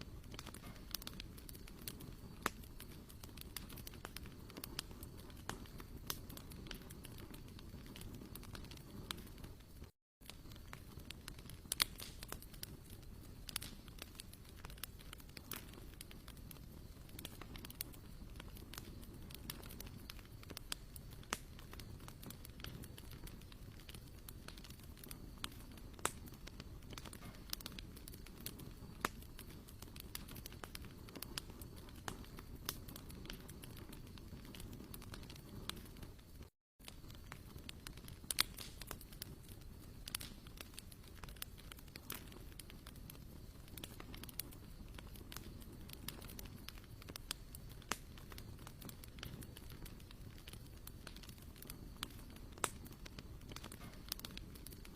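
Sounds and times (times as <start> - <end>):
campfire crackling and popping: 0.0 - 54.9.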